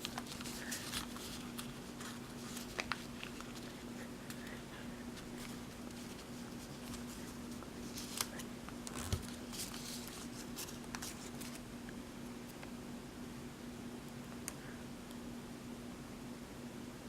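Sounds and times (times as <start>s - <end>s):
paper being folded and creased: 0.0s - 3.8s, 5.2s - 11.6s
steady low hum: 0.0s - 17.0s.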